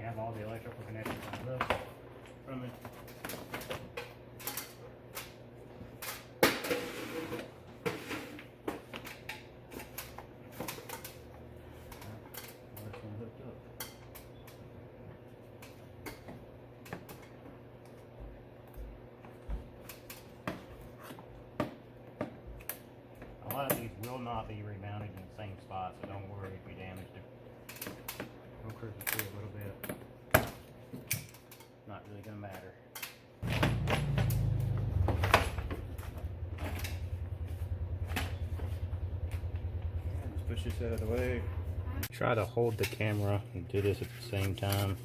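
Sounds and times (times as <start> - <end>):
engine starting and running: 33.4 - 42.1
steady low hum: 33.4 - 45.0.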